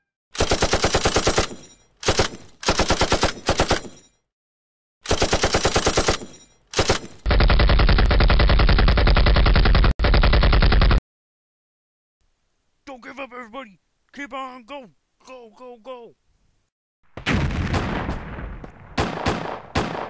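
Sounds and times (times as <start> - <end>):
machine-gun fire: 0.4 - 3.9, 5.0 - 11.0, 17.2 - 20.0
deep low boom: 17.2 - 19.0.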